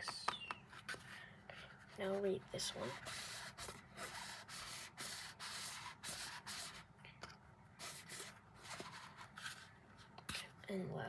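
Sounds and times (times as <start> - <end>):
scratchy rubbing strokes: 0.7 - 6.8, 7.8 - 9.7.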